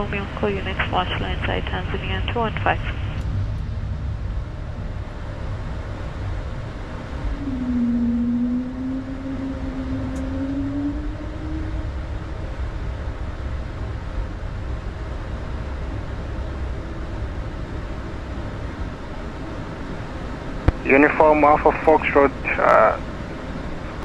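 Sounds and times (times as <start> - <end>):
aircraft cabin rumble and hiss: 0.0 - 8.6, 11.8 - 24.0
humming tone rising in pitch: 3.2 - 20.0.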